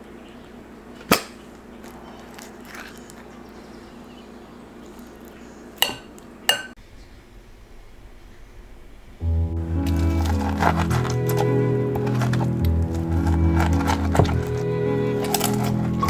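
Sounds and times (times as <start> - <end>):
low hum: 7.6 - 16.0
hard objects clinking: 9.8 - 16.0.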